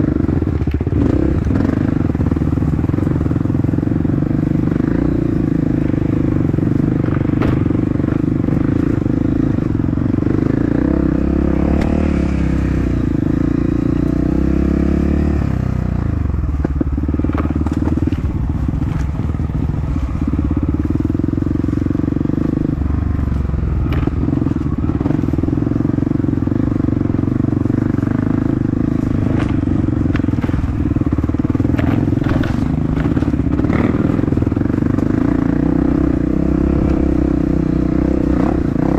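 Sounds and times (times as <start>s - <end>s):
motorcycle engine running: 0.0s - 38.9s
knocks and clatter: 29.2s - 34.0s.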